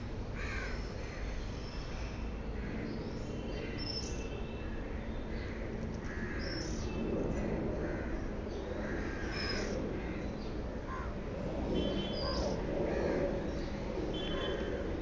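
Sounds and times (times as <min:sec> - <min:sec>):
birds calling and chirping: 0:05.0 - 0:11.1, 0:11.8 - 0:14.8.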